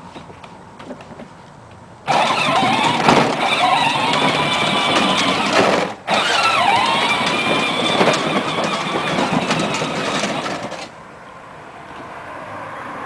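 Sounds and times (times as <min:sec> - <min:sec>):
plastic wheels rattling: 0:02.1 - 0:11.0
toy truck motor whirring: 0:02.1 - 0:11.0.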